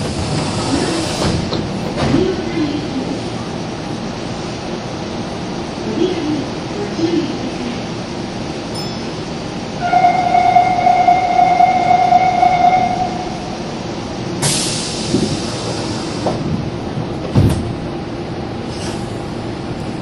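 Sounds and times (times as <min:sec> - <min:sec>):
compressed air hiss: 0:14.4 - 0:16.2.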